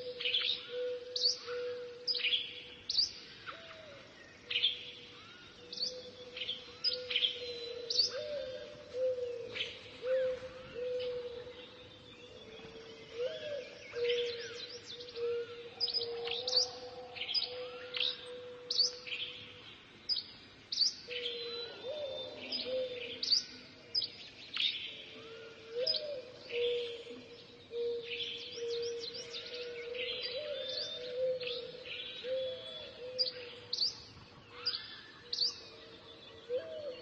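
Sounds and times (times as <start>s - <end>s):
small birds chirping: 2.1s - 10.0s, 15.8s - 25.2s.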